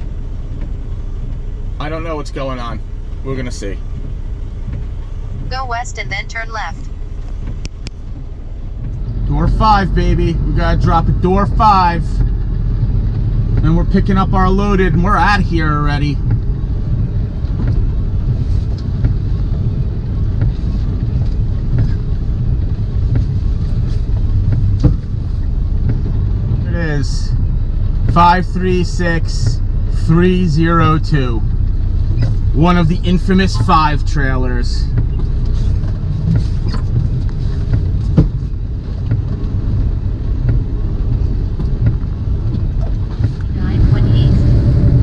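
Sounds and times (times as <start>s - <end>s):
diesel engine low rumble: 0.0s - 45.0s
heavy rain tapping on cab: 0.0s - 45.0s
short knocks and taps: 24.1s - 25.2s, 34.9s - 39.5s.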